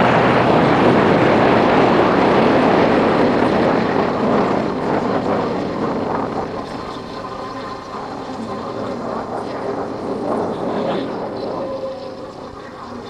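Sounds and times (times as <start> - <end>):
motorcycle road noise: 0.0 - 13.0
rushing wind: 0.0 - 13.0.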